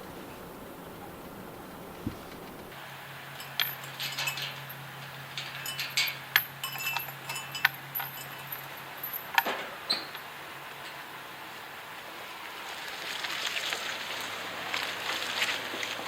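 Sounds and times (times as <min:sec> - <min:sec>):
steady low hum: 0:00.0 - 0:02.8
metallic clinking and jingling: 0:03.4 - 0:10.3.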